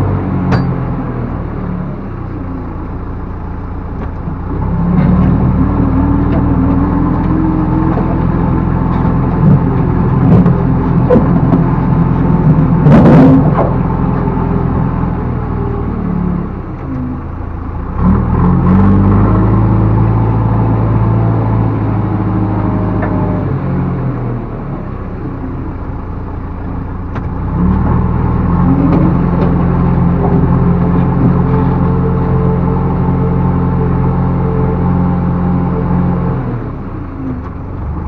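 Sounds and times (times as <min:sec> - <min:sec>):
diesel engine revving: 0:00.0 - 0:38.0.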